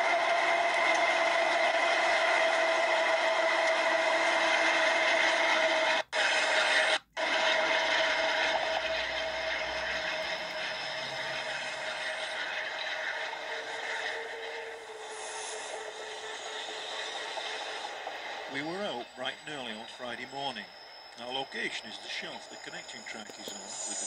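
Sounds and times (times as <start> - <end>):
freight train running past: 0.0 - 24.0.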